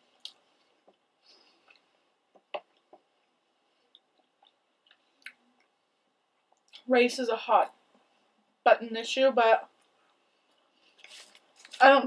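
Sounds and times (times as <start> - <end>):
faint chewing: 0.1 - 6.9
wet mouth clicks: 3.9 - 5.7.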